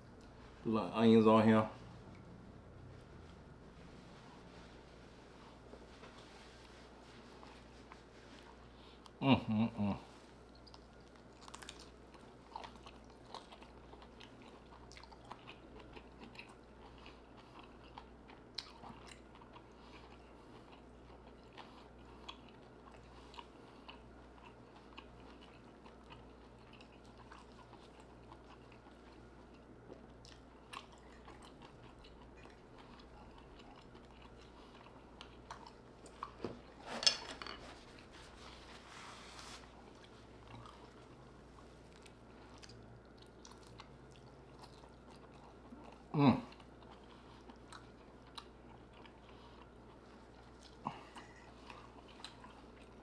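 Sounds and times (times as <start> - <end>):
person biting and chewing: 11.3 - 12.0.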